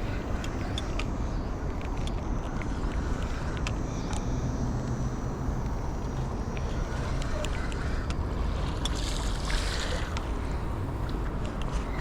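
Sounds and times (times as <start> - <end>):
flowing river water: 6.2 - 12.0.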